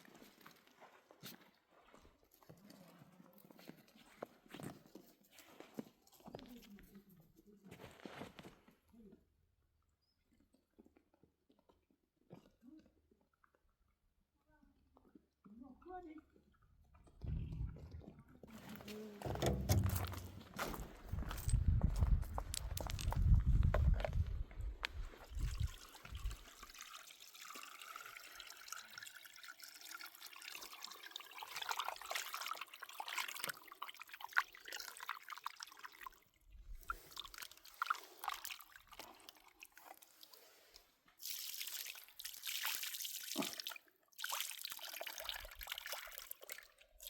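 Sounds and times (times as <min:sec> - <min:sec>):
running water: 0:17.1 - 0:20.9, 0:25.0 - 0:47.0
handling clicks and knocks: 0:19.2 - 0:20.8
water trickling and dripping: 0:24.8 - 0:47.0.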